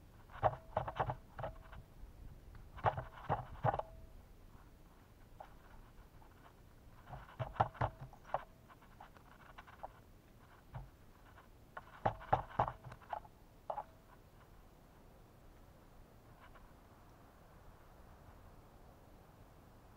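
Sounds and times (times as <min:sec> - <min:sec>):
birds pecking on a feeder: 0:00.0 - 0:01.9, 0:02.5 - 0:04.0, 0:05.1 - 0:14.6.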